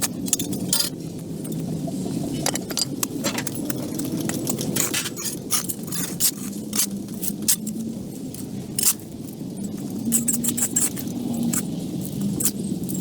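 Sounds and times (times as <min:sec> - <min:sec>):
sharp clicks and clinks: 0:02.3 - 0:03.7.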